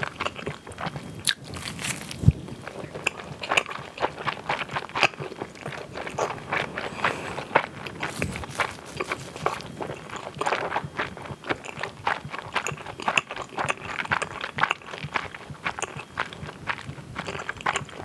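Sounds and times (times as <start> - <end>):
chewing with mouth clicks: 0.0 - 18.0.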